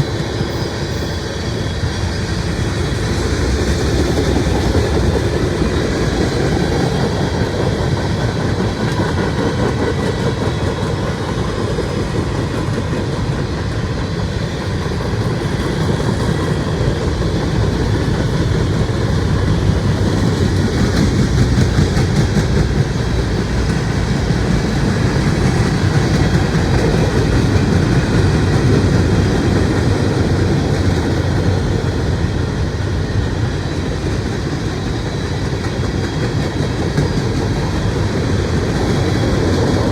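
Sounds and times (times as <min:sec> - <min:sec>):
freight train rolling past: 0:00.0 - 0:39.9
wheels clicking over rail joints: 0:03.4 - 0:32.3, 0:33.9 - 0:39.9.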